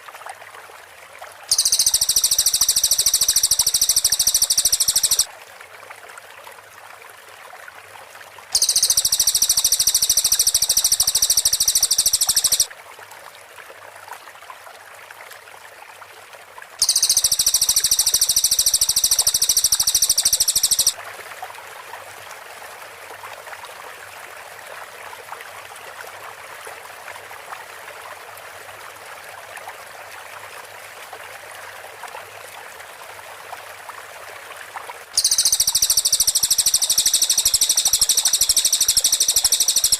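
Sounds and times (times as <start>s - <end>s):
bird rapid high-pitched song: 1.5s - 5.3s, 8.6s - 12.7s, 16.8s - 21.0s, 35.2s - 39.9s
steady background hiss: 1.5s - 5.3s, 8.6s - 12.7s, 16.8s - 21.0s, 35.2s - 39.9s.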